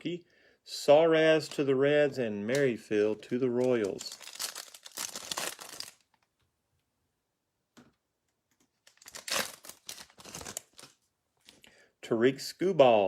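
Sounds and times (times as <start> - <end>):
foil wrapper crinkling and tearing: 2.5 - 6.2, 8.9 - 11.0.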